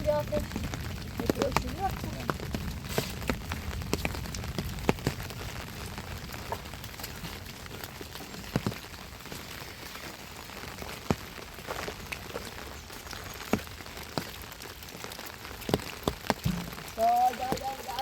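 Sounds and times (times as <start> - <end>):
steady rain falling: 0.0 - 18.0
sharp drops striking close by: 16.4 - 17.0.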